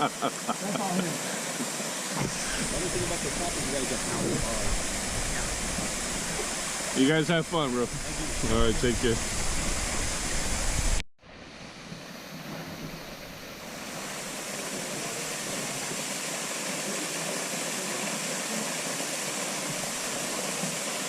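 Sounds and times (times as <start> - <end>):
waterfall pouring into pool: 0.0 - 11.0, 13.7 - 21.0.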